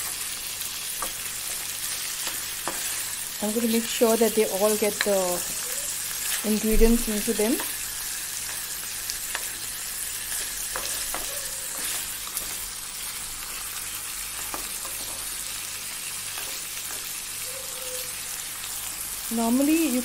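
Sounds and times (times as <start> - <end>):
chicken sizzling in oil: 0.0 - 20.0
spatula scraping and tapping pan: 1.0 - 3.1, 10.3 - 12.6.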